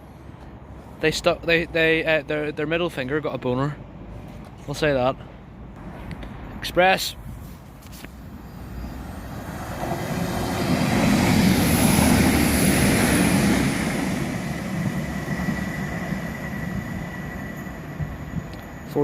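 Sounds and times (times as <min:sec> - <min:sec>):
train passing at speed: 0:05.3 - 0:19.0
thin high whine: 0:08.2 - 0:09.9, 0:11.6 - 0:19.0.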